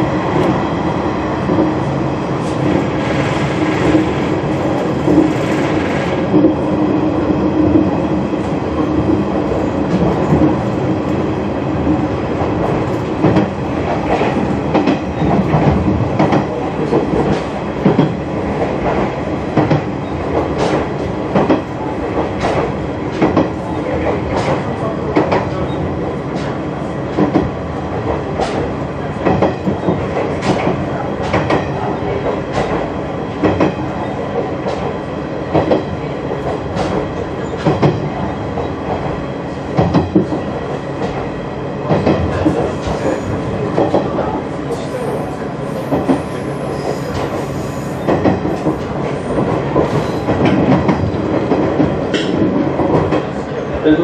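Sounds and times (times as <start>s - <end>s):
train running noise: 0.0s - 54.0s.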